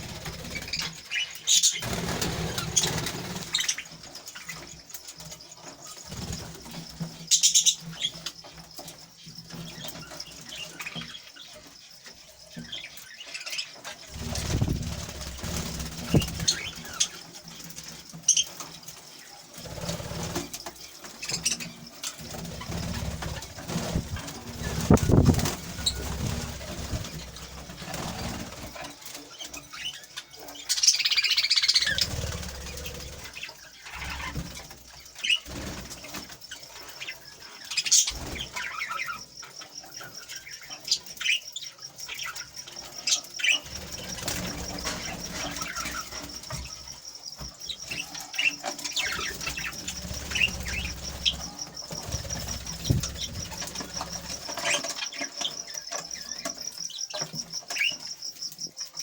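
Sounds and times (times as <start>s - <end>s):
birds flapping wings: 0.0s - 8.3s, 14.0s - 17.9s, 19.6s - 29.6s, 31.6s - 37.1s, 37.7s - 39.1s, 43.2s - 56.6s
small birds chirping: 0.0s - 59.0s.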